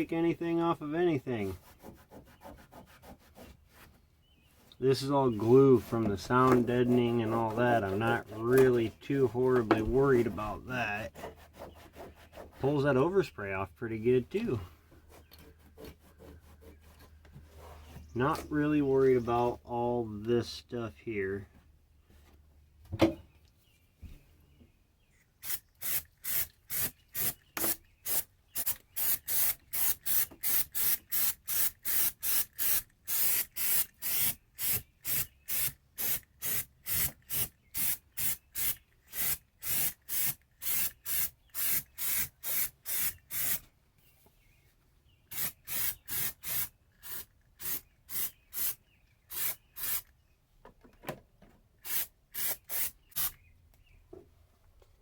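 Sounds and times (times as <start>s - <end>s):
spray bottle squirting: 25.4s - 43.6s, 45.3s - 50.0s, 51.8s - 53.4s.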